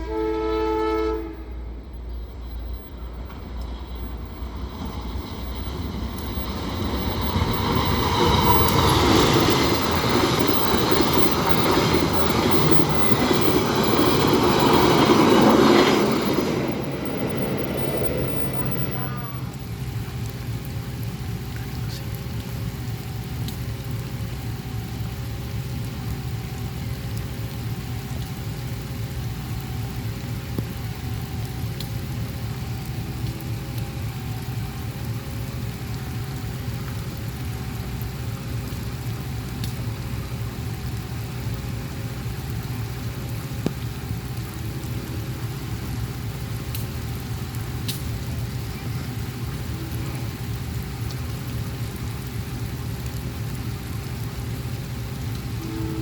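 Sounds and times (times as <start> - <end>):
faint pulsing tone: 0.0 - 19.9
steady rain falling: 0.0 - 56.0.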